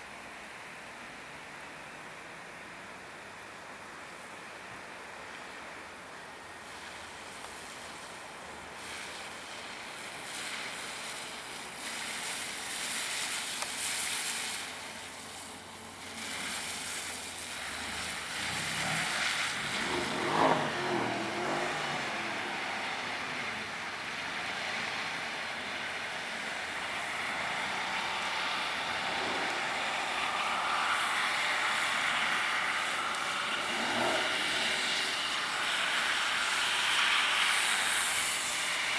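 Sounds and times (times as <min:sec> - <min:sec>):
car engine driven hard: 0:15.7 - 0:38.9.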